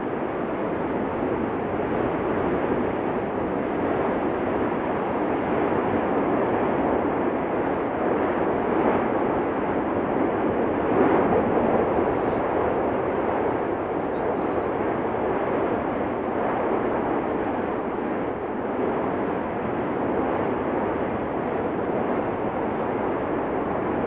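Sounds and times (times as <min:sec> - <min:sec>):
volcano eruption rushing: 0:00.0 - 0:24.0.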